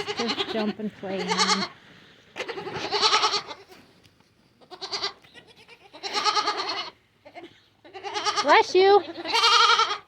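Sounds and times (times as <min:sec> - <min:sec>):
goat kids bleating: 0:00.0 - 0:03.9, 0:04.6 - 0:10.0.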